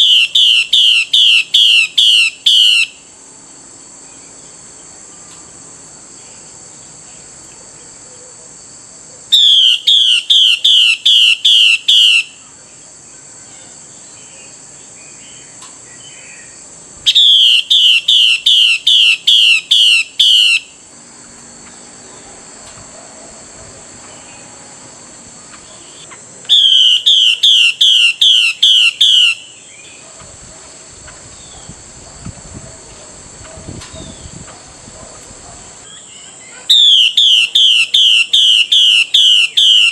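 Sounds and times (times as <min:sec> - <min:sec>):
bird calling in falling notes: 0:00.0 - 0:03.0, 0:09.4 - 0:12.4, 0:17.1 - 0:20.8, 0:25.6 - 0:30.0, 0:35.8 - 0:39.9.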